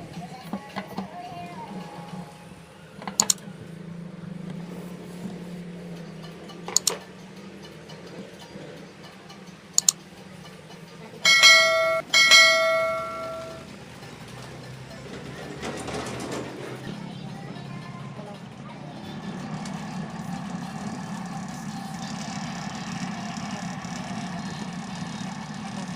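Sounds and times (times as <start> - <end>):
electronic chime: 11.3 - 13.6.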